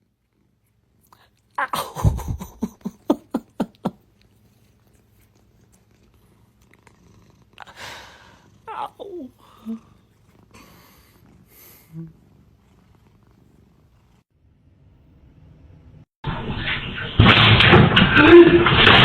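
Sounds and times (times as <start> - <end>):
breathy sound: 7.6 - 12.2.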